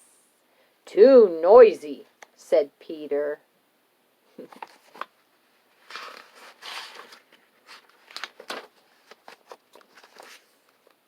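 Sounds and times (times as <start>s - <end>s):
book page turning: 4.4s - 5.2s, 5.8s - 10.9s.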